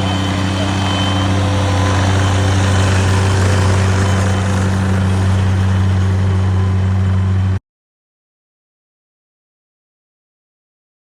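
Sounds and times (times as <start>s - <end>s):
engine idling: 0.0s - 7.6s.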